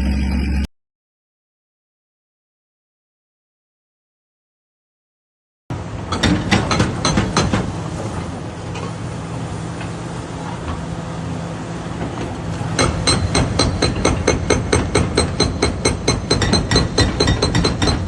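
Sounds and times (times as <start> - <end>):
diesel excavator engine: 5.7 - 18.0
hydraulic breaker hammering: 6.1 - 7.9, 12.7 - 18.0.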